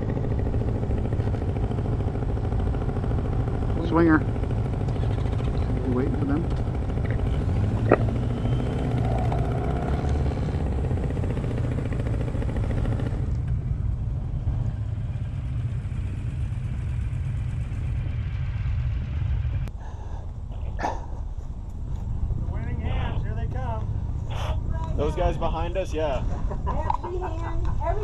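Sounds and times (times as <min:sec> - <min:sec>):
motorcycle engine running: 0:00.0 - 0:19.7.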